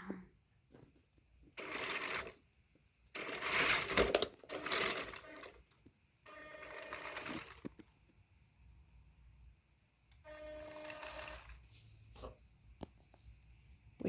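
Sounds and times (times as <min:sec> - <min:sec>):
toy truck motors whirring: 0:01.6 - 0:02.4, 0:03.1 - 0:07.8, 0:10.3 - 0:11.7.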